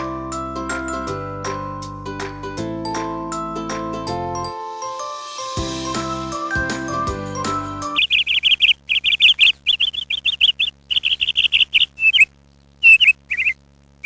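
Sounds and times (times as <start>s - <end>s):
music: 0.0s - 8.0s
small bird chirping: 7.9s - 13.6s.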